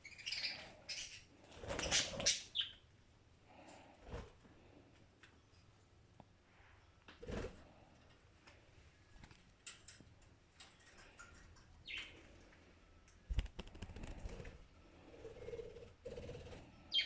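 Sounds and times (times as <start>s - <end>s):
wings flapping: 13.3s - 14.6s.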